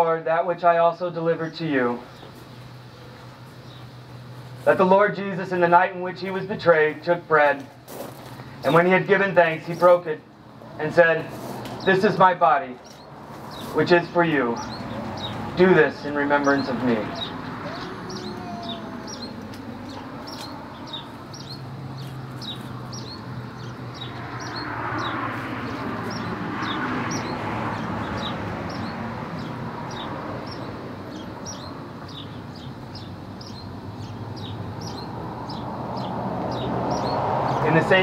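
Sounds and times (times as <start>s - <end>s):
bird chirping: 1.5s - 4.3s, 12.8s - 38.0s
car passing: 10.5s - 38.0s.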